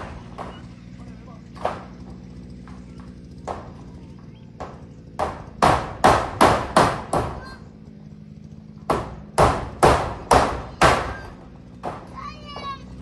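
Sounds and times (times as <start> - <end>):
hammer driving nails: 4.6 - 7.4, 8.9 - 12.1.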